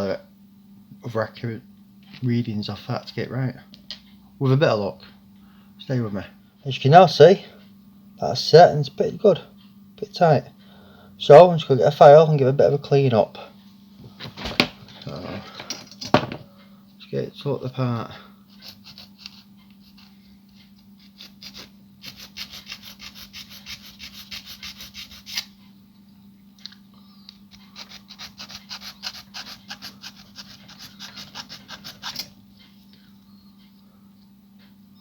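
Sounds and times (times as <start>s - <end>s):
hand file rasping on plastic: 18.5s - 20.1s, 21.0s - 25.5s, 27.5s - 32.3s.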